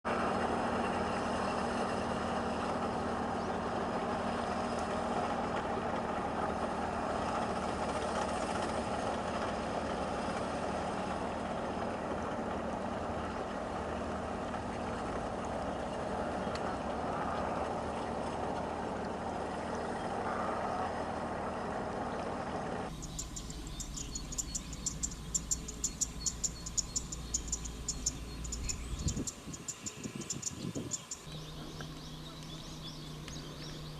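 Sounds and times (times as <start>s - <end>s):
vehicle engine idling: 0.1s - 33.9s
insects chirping: 22.9s - 33.9s.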